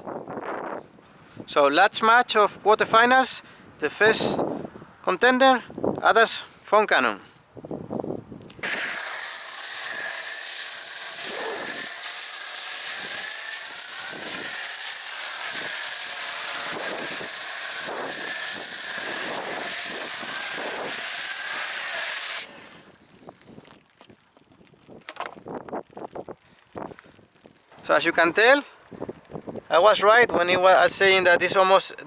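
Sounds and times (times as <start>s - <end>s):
foam cannon spraying hiss: 8.6s - 22.9s.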